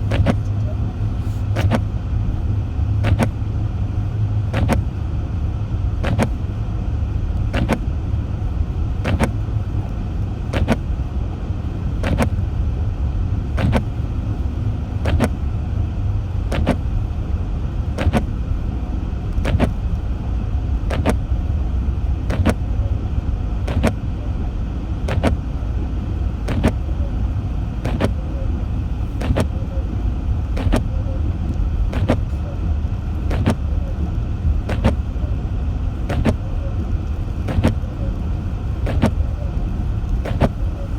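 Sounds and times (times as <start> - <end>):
windshield wipers clicking: 0.0 - 2.0, 2.9 - 3.4, 4.5 - 5.0, 6.0 - 6.6, 7.4 - 8.0, 8.6 - 11.0, 11.6 - 12.5, 13.5 - 15.6, 16.4 - 17.2, 17.9 - 18.6, 19.3 - 20.1, 20.8 - 21.4, 22.2 - 22.8, 23.6 - 24.2, 25.0 - 40.9
car engine and tyres rumble: 0.0 - 40.9.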